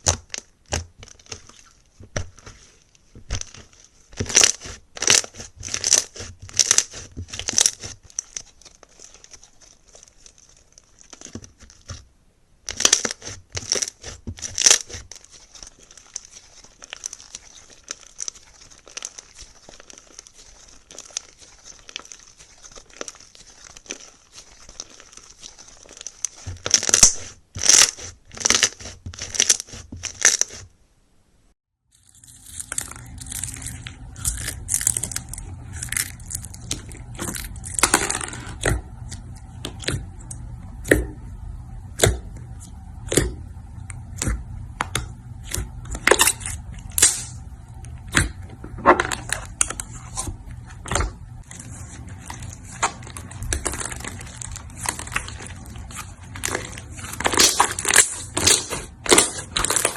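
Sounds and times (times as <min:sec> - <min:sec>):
slime squeezed by hand crackling: 0:00.0 - 0:12.0, 0:12.7 - 0:30.6, 0:49.1 - 0:59.9.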